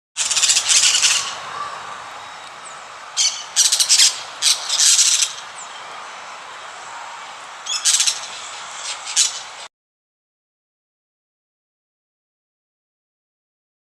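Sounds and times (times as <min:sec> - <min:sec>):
cage birds chattering: 0:00.2 - 0:09.7
steady hiss: 0:00.2 - 0:09.7.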